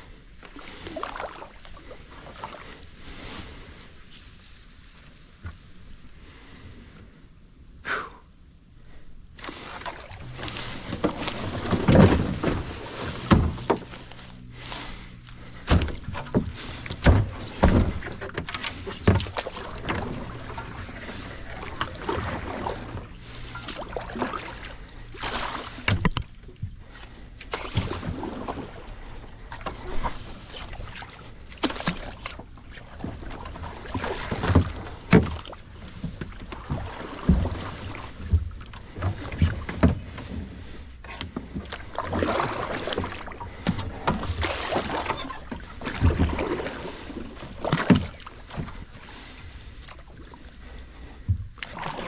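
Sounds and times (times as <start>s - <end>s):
paddle splashes: 0.3s - 5.9s, 9.3s - 52.0s
paddle knocks against hull: 10.4s - 14.1s, 15.6s - 21.0s, 25.2s - 26.3s, 33.0s - 40.5s, 41.1s - 46.7s, 47.6s - 48.9s.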